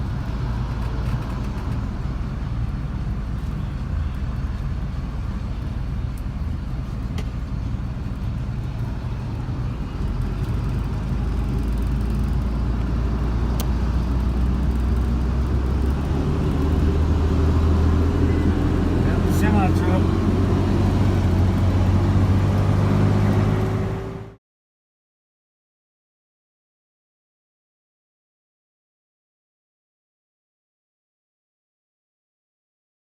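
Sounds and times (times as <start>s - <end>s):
car engine and road noise: 0.0s - 24.4s.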